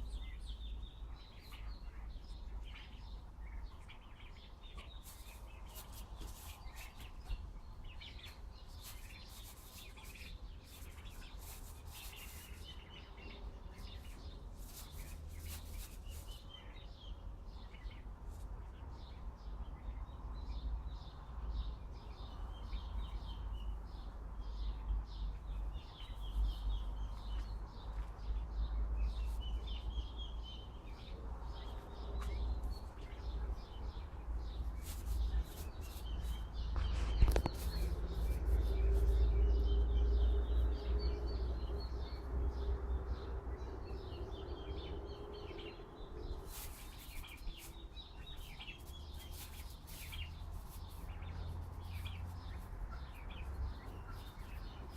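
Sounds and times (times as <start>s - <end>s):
small birds chirping: 0.0s - 54.9s.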